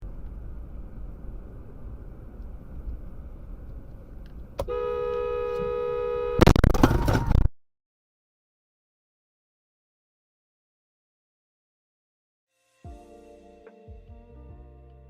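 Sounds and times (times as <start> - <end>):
car rumbling on road: 0.0 - 7.4
car horn: 4.6 - 6.6
harsh impact noise: 6.4 - 7.5.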